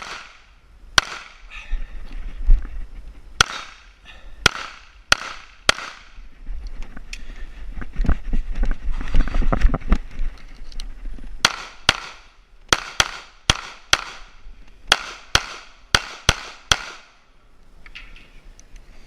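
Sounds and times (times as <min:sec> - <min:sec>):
pistol shots with echo: 0:00.0 - 0:01.4, 0:03.4 - 0:03.8, 0:04.4 - 0:06.1, 0:11.4 - 0:14.3, 0:14.9 - 0:17.2.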